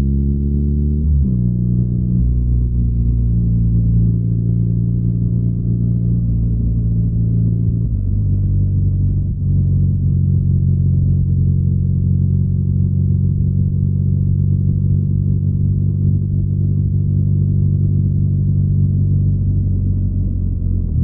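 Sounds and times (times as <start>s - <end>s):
motorcycle engine drone: 0.0s - 21.0s.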